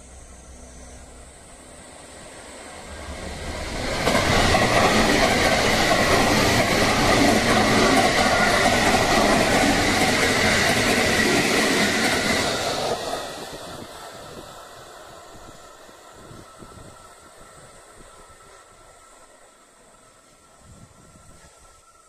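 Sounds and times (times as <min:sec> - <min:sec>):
thin high whine: 0:00.0 - 0:04.5
train wheels rushing on rail: 0:00.0 - 0:22.0.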